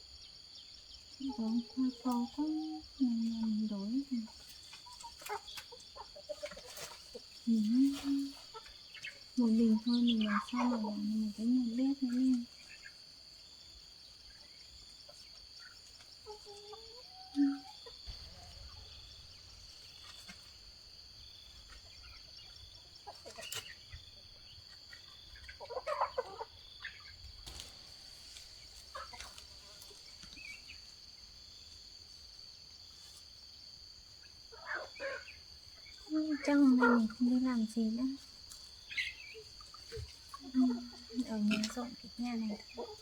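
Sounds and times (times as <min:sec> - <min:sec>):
high insect drone: 0:00.0 - 0:43.0
chickens clucking: 0:01.2 - 0:31.0, 0:34.0 - 0:43.0.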